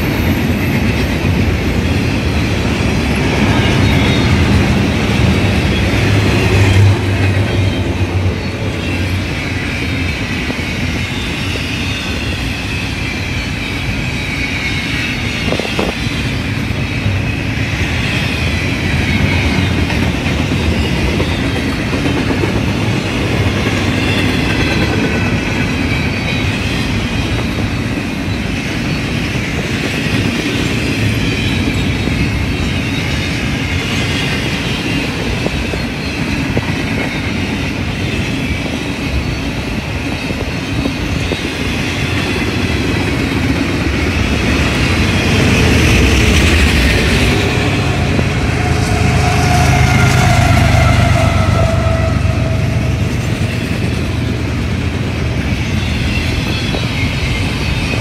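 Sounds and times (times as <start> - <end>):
train wheels rumbling on rails: 0.0 - 58.0
high-pitched wheel squeal: 44.0 - 54.0.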